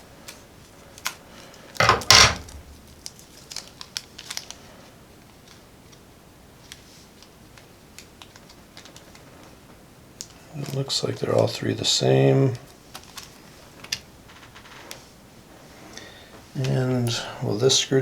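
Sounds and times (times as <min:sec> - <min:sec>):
plastic bag crinkling: 0:01.7 - 0:04.7.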